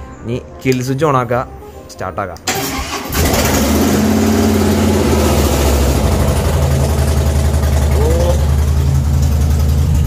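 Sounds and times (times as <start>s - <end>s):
motorcycle engine idling: 4.3s - 10.0s.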